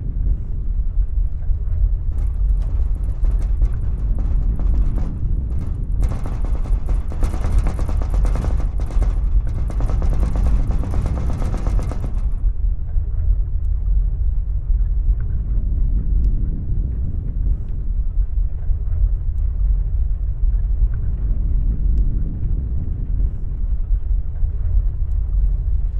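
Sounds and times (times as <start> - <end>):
low earthquake rumble: 0.0 - 25.9
loose objects rattling: 2.1 - 12.5.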